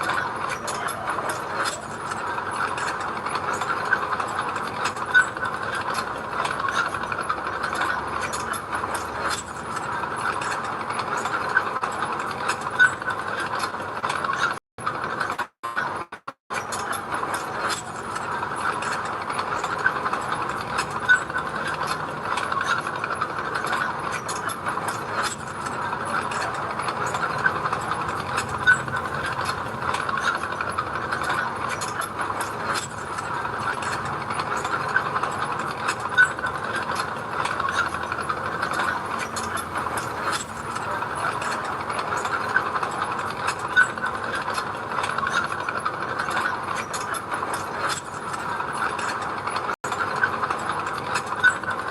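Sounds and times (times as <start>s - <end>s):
dense metallic clatter: 0.0s - 51.9s
construction machine engine running: 16.6s - 49.4s.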